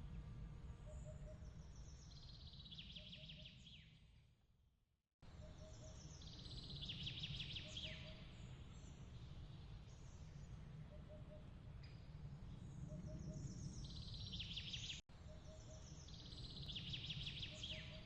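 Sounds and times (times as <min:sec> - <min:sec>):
low steady rumble: 0:00.0 - 0:02.8
faint birdsong trills and whistles: 0:00.0 - 0:04.2, 0:05.2 - 0:18.0.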